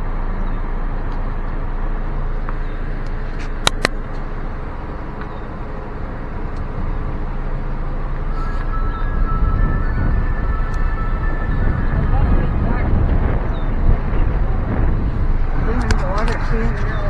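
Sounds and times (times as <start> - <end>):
car rolling slowly rumble: 0.0 - 17.0
sharp clicks: 3.0 - 4.3.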